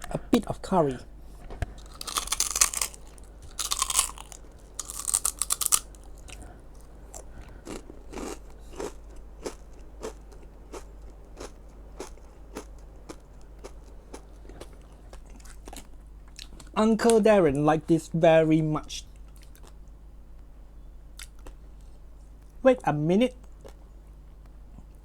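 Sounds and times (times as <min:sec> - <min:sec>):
crunching and chewing snack: 0:01.6 - 0:16.8, 0:19.2 - 0:19.9, 0:21.2 - 0:22.0.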